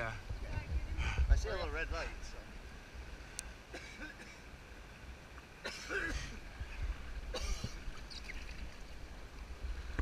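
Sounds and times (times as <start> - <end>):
steady low rumble: 0.0 - 3.0
person coughing: 5.6 - 6.4, 7.3 - 7.8.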